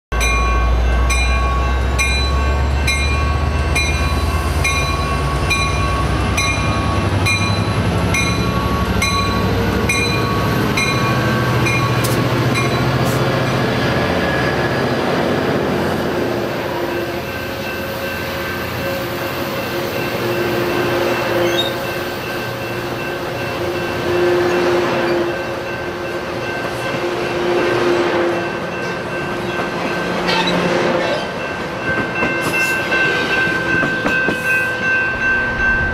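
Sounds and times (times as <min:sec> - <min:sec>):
locomotive bell ringing: 0:00.1 - 0:35.9
locomotive engine rumbling: 0:00.1 - 0:35.9
train coaches rolling by: 0:00.1 - 0:35.9
train wheel clacks: 0:01.2 - 0:13.6, 0:28.4 - 0:34.8.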